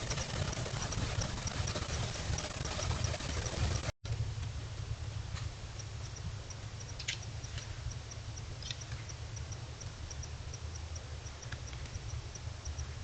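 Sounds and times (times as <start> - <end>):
sharp clicks: 0.0 - 4.0, 5.8 - 13.0
steady low rumble: 0.0 - 13.0
small animal chirping: 5.8 - 13.0.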